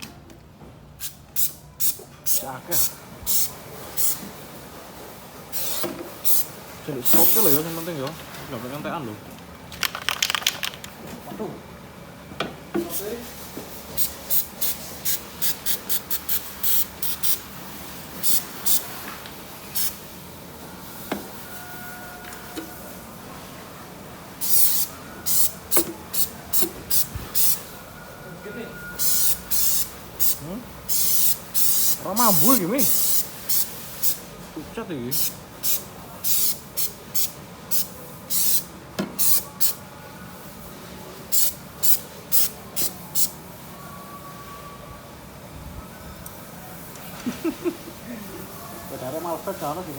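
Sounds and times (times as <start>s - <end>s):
short hissing spray bursts: 1.0s - 4.2s, 5.5s - 7.8s, 12.9s - 19.0s, 19.7s - 20.0s, 24.4s - 27.6s, 29.0s - 34.3s, 35.1s - 39.8s, 41.2s - 43.3s.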